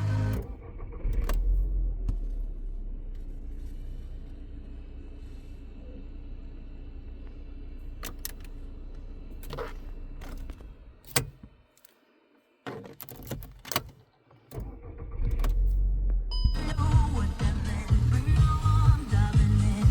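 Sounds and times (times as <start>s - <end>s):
low steady hum: 1.2s - 13.6s
low rumble: 15.4s - 19.9s.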